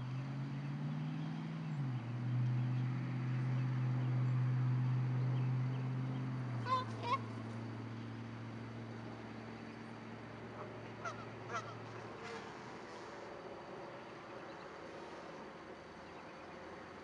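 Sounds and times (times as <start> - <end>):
honk-like bird calls: 10.6 - 12.5.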